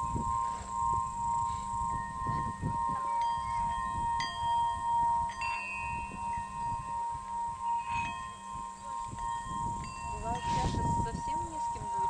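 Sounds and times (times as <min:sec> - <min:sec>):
singing bowl steady beating tone: 0:00.0 - 0:12.0
singing bowls struck ringing: 0:00.0 - 0:12.0.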